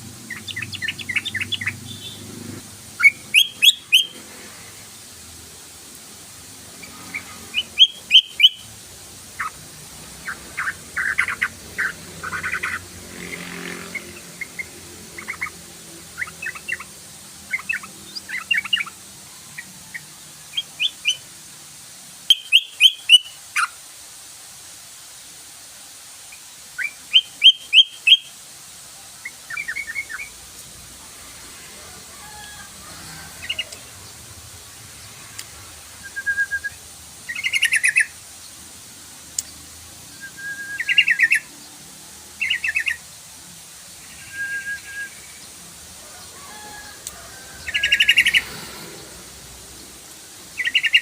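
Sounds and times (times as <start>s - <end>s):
bird singing and chattering: 0.2s - 2.4s, 3.0s - 4.2s, 6.8s - 8.7s, 10.2s - 19.0s, 36.1s - 38.2s, 40.2s - 41.5s, 42.4s - 43.0s, 50.6s - 51.0s.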